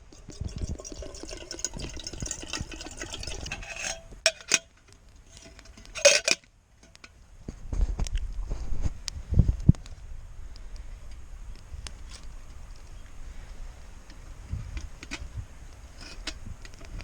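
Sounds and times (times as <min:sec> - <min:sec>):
crackly liquid and scraping: 0:00.0 - 0:09.0, 0:10.8 - 0:17.0
ringing metal clink: 0:00.2 - 0:04.7.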